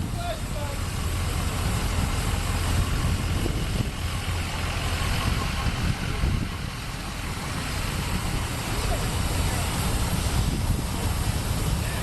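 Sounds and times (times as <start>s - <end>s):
large vehicle engine idling: 0.0s - 12.0s
faint voices: 4.3s - 12.0s.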